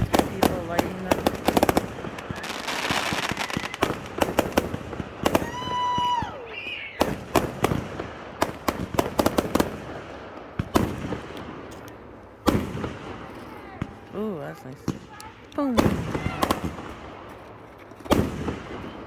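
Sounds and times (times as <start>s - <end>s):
fireworks bangs and crackles: 0.0s - 19.0s
firework whistle: 2.2s - 4.4s, 5.3s - 7.2s.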